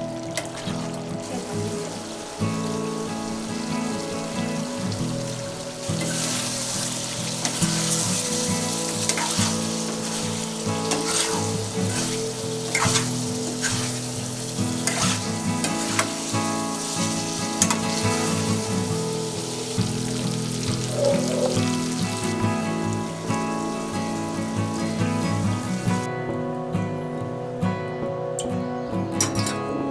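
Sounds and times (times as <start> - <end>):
food sizzling in a pan: 0.0 - 26.1
spatula scraping a pan: 6.0 - 16.8.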